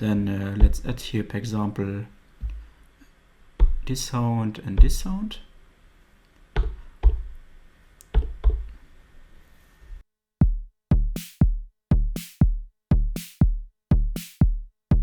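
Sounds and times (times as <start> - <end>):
drum machine kick hits: 0.6 - 1.0, 3.6 - 3.9, 4.8 - 5.2, 6.6 - 7.4, 8.2 - 8.7, 10.4 - 15.0.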